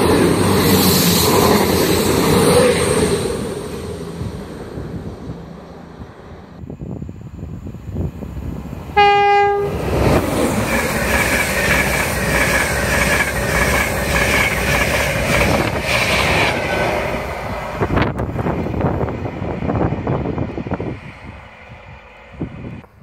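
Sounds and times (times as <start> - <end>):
train passing at speed: 0.0 - 23.0
train horn: 9.0 - 9.9.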